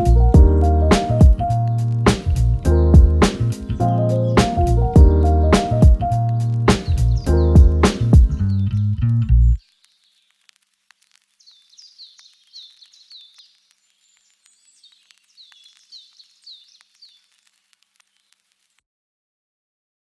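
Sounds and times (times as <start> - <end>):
faint bird song: 3.6 - 10.4, 11.4 - 18.5.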